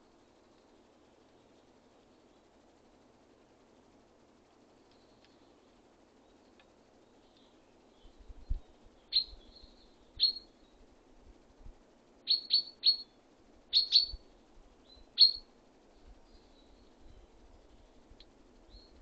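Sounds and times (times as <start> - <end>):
songbird call notes: 4.7 - 10.9, 12.2 - 19.0.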